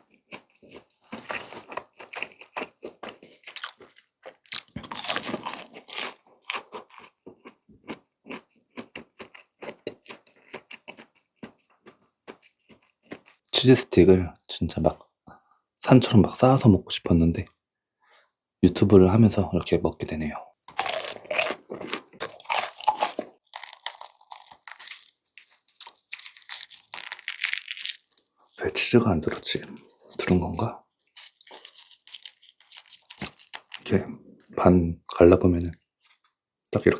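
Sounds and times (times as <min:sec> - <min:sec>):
crunchy chewing: 0:00.0 - 0:13.5, 0:20.6 - 0:28.6, 0:29.3 - 0:34.0
crunchy bite into fried food: 0:01.2 - 0:13.4, 0:20.6 - 0:28.3, 0:31.2 - 0:33.8.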